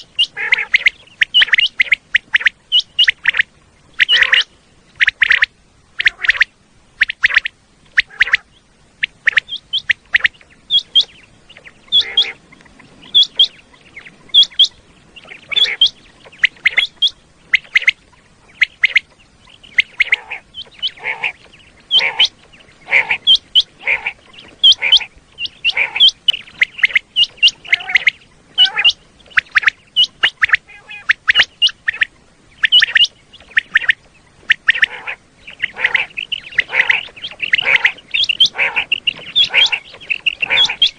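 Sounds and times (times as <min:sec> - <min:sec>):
quail calling: 0:00.0 - 0:40.9.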